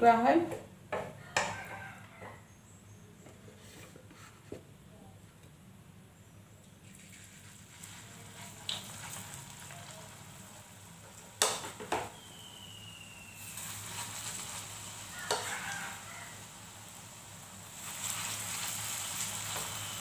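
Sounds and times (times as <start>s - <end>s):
spoon tapping on pan: 0.9s - 2.4s, 15.2s - 15.5s
batter sizzling in hot oil: 6.8s - 20.0s.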